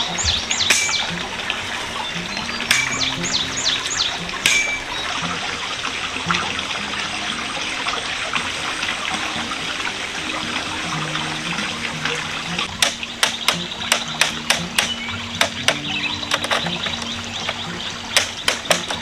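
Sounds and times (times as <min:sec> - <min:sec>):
sharp clicks: 0:00.0 - 0:05.1, 0:12.5 - 0:19.0
water trickling: 0:00.0 - 0:19.0.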